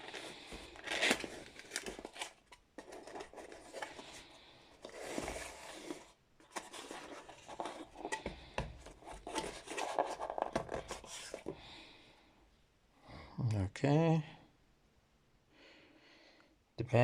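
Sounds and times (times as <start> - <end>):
packaging rustling and scraping: 0.0 - 11.6.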